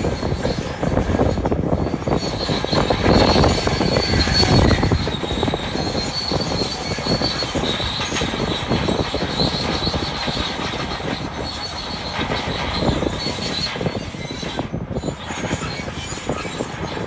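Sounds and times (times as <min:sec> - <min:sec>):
bulldozer engine: 0:00.0 - 0:13.4
high-pitched squeal: 0:00.0 - 0:17.0
steel tracks clattering: 0:00.0 - 0:17.0.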